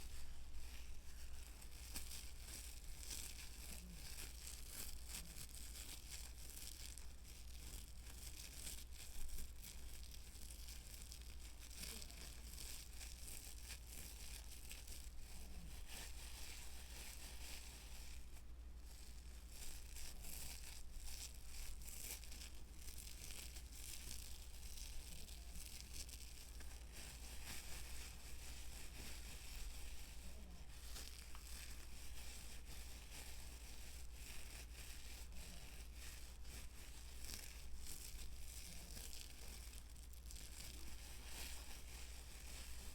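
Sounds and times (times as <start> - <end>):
crisp scratching and crinkling: 0.0 - 42.9
low steady hum: 0.0 - 42.9.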